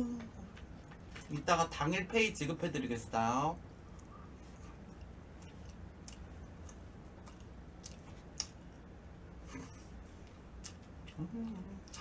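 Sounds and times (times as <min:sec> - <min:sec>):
low steady hum: 0:00.0 - 0:12.0
wet mouth clicks from chewing: 0:04.9 - 0:08.6.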